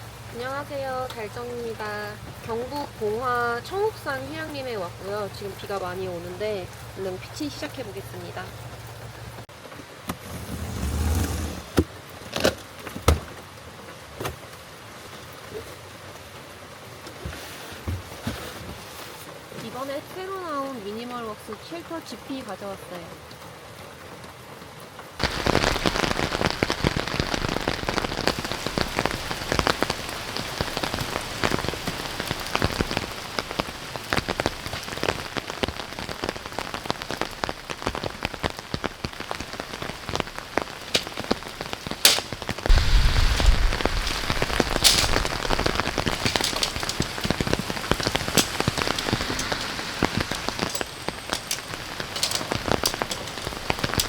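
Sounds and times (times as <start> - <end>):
heavy rain falling: 0.0 - 17.4, 25.1 - 54.0
wind rumble on microphone: 42.4 - 54.0.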